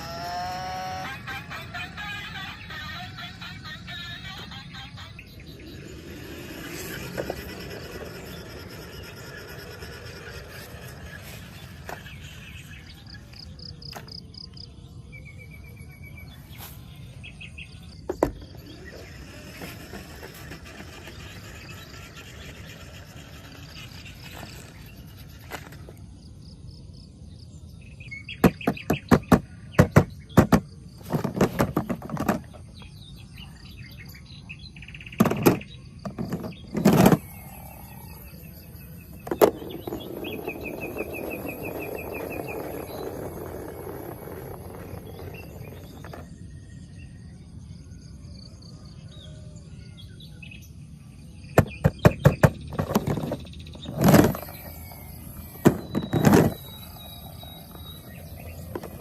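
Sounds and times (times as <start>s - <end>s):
birds chirping: 0.0s - 48.0s, 48.7s - 59.0s
toy cars clicking and knocking: 5.8s - 12.7s, 18.0s - 26.1s, 28.4s - 32.9s, 35.1s - 46.5s, 51.6s - 59.0s.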